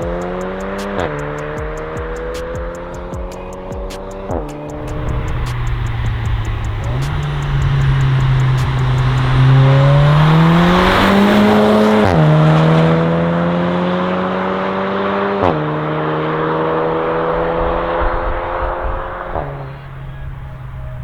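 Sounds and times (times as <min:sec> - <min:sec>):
car engine accelerating: 0:00.0 - 0:21.0
exhaust crack on gear shift: 0:04.8 - 0:12.2.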